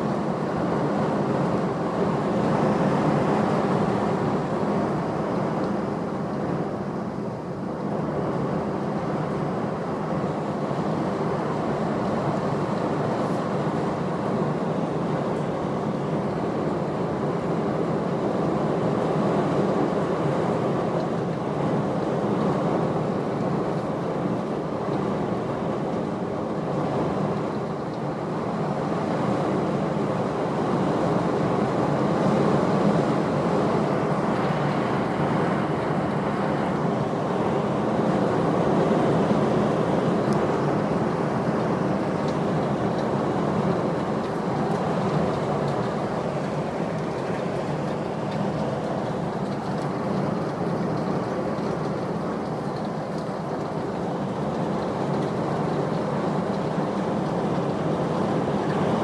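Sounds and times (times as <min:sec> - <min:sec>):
rain: 0:00.0 - 0:59.0
wind: 0:00.0 - 0:59.0.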